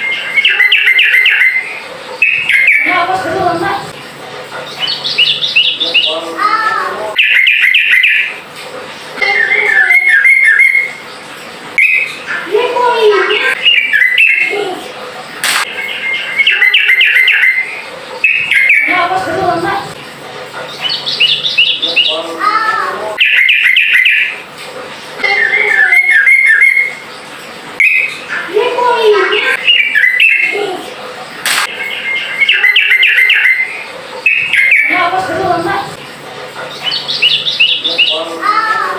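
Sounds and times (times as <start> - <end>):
bird chattering calls: 0.0 - 3.3, 4.4 - 8.5, 15.4 - 19.4, 20.2 - 24.5, 25.2 - 30.7, 31.4 - 38.9
sharp click: 15.4 - 15.7, 31.4 - 31.7.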